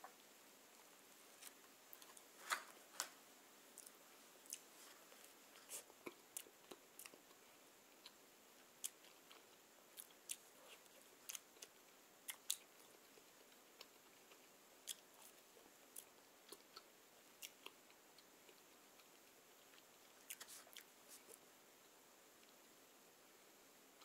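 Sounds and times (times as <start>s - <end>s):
chewing soft bread: 3.7s - 22.8s.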